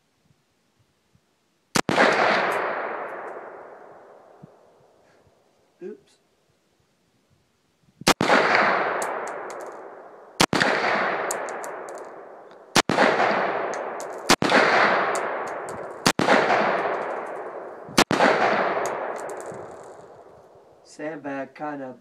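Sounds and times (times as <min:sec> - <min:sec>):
rifle shots echoing: 0:01.7 - 0:04.7, 0:08.0 - 0:20.7.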